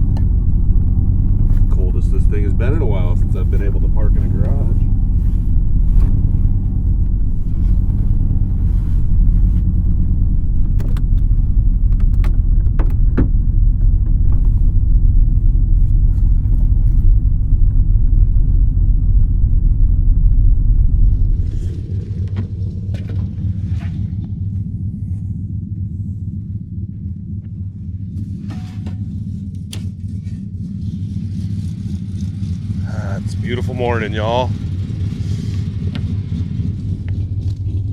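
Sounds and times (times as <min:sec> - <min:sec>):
truck engine idling: 0:00.0 - 0:37.9.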